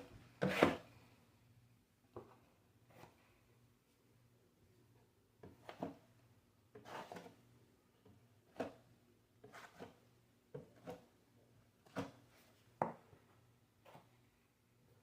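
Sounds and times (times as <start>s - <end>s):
drywall knife scraping compound: 0.0s - 0.9s, 6.7s - 7.5s, 9.4s - 11.1s.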